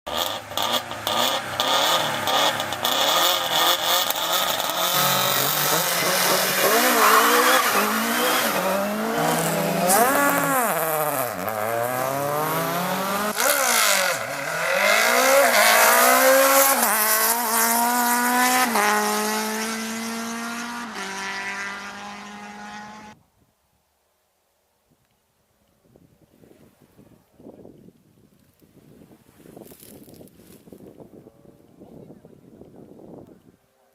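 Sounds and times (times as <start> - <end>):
rally car engine revving: 0.1 - 23.2.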